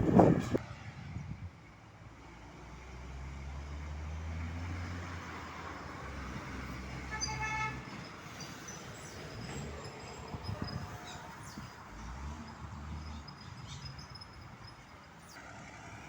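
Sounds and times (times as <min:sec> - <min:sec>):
truck horn toot: 0:00.0 - 0:00.6, 0:07.0 - 0:08.0
diesel truck engine droning: 0:00.0 - 0:01.0.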